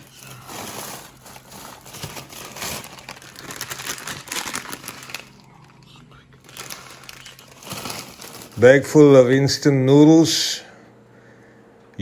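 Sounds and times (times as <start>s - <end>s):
plastic food packaging crinkling: 0.0s - 9.2s.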